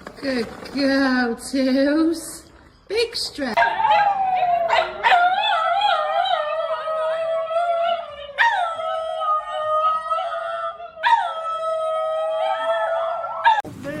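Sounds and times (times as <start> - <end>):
dog howling: 3.6 - 13.6.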